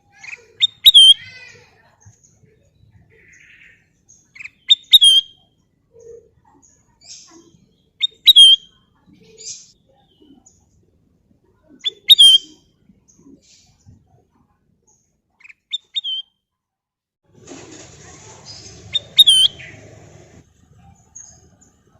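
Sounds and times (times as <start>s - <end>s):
bird whistled calls: 0.6s - 1.2s, 4.6s - 5.4s, 8.0s - 8.7s, 11.8s - 12.6s, 15.7s - 16.3s, 18.9s - 19.8s.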